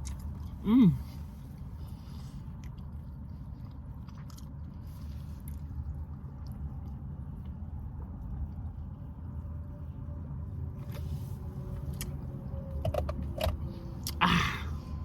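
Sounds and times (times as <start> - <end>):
person chewing: 0.0 - 8.6, 11.7 - 12.2, 13.2 - 14.8
car cabin rumble: 5.2 - 15.0.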